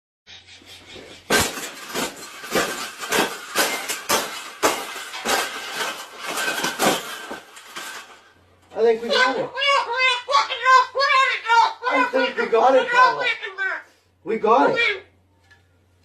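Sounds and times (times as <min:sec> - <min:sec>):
metal cage clanging: 0:01.3 - 0:08.3.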